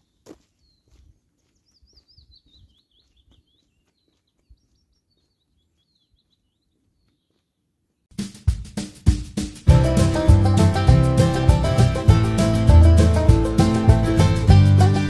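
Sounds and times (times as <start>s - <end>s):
soft footsteps: 0.0s - 7.6s
songbird singing: 0.0s - 7.6s.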